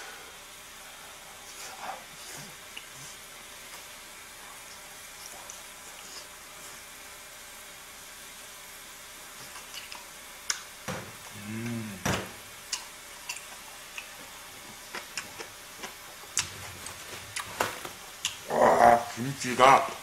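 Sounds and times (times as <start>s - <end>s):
person chewing with mouth clicks: 2.4s - 3.2s, 4.6s - 6.4s, 9.4s - 17.6s, 18.2s - 18.6s
person humming: 11.3s - 12.3s, 18.4s - 19.3s.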